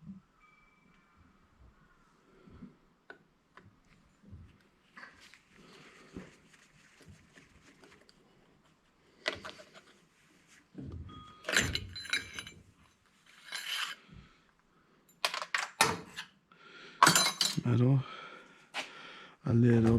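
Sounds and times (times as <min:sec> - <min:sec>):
metal parts clattering: 0:11.4 - 0:12.6, 0:13.3 - 0:14.0, 0:15.2 - 0:16.2, 0:17.0 - 0:17.6.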